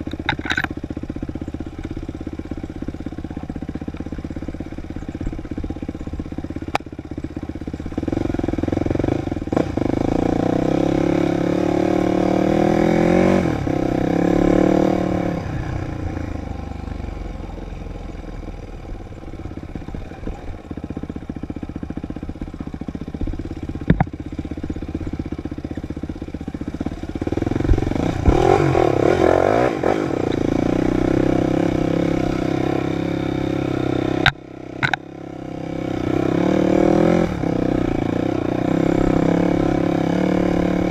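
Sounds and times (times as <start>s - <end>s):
dirt bike engine revving: 7.8s - 17.4s, 19.1s - 40.9s
sharp knocks and clatter: 23.8s - 24.2s, 34.2s - 35.0s.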